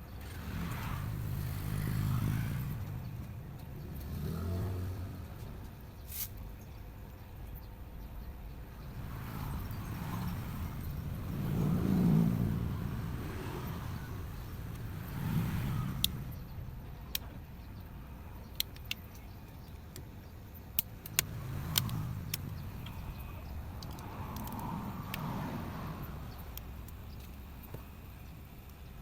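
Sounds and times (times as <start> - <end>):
road vehicles passing: 0.0 - 29.0
sharp clicks: 14.6 - 17.4, 18.4 - 20.1, 20.7 - 25.4.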